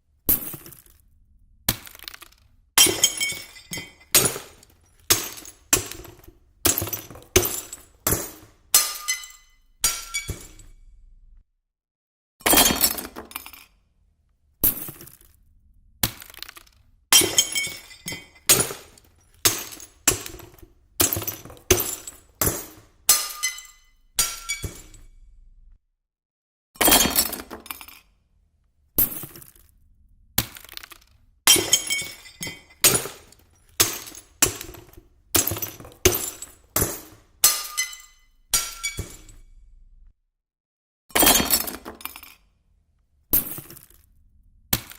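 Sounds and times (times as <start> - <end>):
glass shattering: 1.7 - 10.7, 12.5 - 13.6, 16.1 - 25.1, 26.8 - 28.0, 30.4 - 39.4, 41.2 - 42.4.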